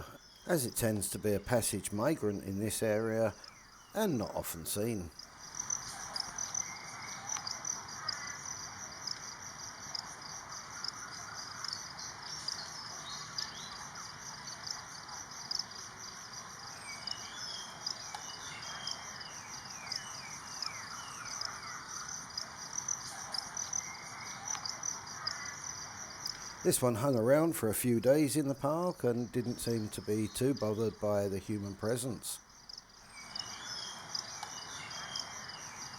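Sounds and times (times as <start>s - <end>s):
background hiss: 0.0s - 35.9s
insects trilling: 0.0s - 35.9s.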